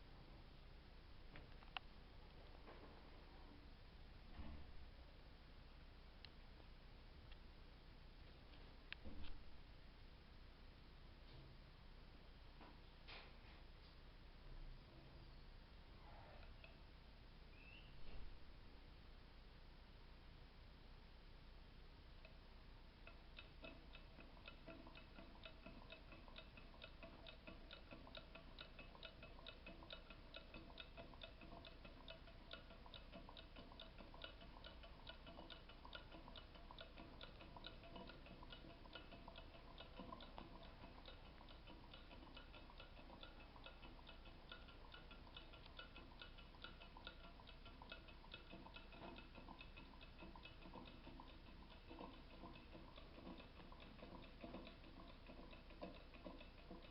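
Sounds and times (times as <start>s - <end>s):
small engine fan ticking: 22.2s - 56.9s.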